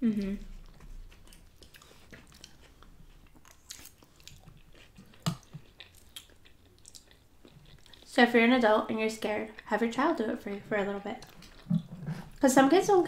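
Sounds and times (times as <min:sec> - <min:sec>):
close chewing with wet mouth clicks: 0:00.4 - 0:08.2, 0:11.2 - 0:12.4.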